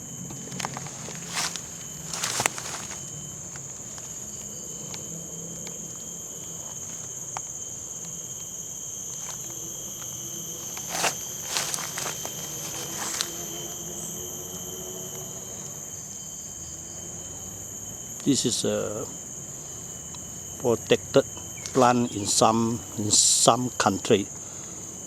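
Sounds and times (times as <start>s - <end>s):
insects droning: 0.0s - 25.0s
crackling rustles: 0.2s - 13.6s, 21.5s - 23.0s.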